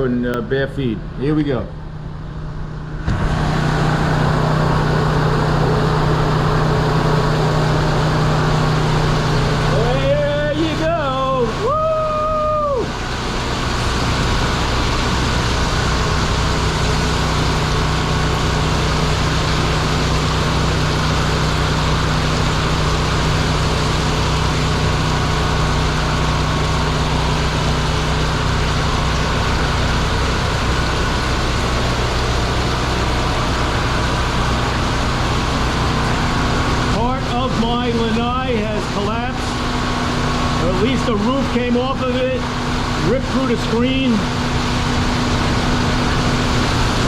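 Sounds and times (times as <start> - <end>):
generator engine humming: 0.0 - 47.0
rain: 11.6 - 36.9.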